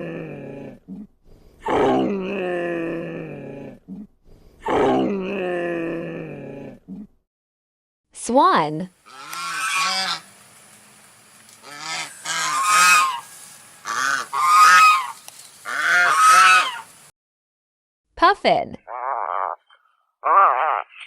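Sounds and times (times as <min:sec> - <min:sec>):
swans honking: 0:09.0 - 0:17.1.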